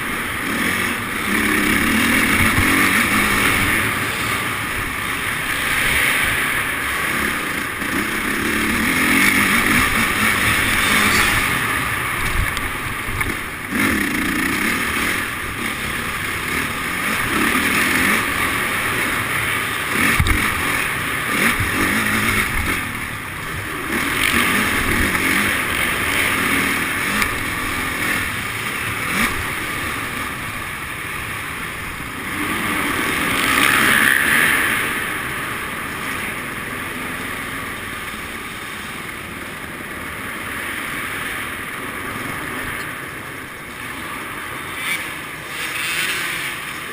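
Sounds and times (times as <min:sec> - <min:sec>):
motocross bike engine revving: 0:00.0 - 0:39.4, 0:43.8 - 0:46.9.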